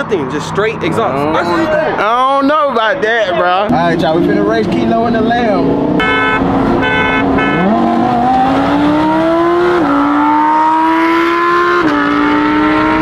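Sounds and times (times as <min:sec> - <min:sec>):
car engine accelerating hard: 0:03.7 - 0:13.0.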